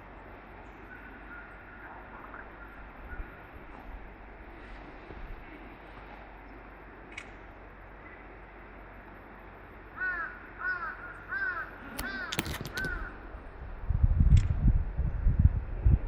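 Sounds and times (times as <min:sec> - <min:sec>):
crow cawing: 0:10.0 - 0:13.2
sharp clicks: 0:12.0 - 0:13.1.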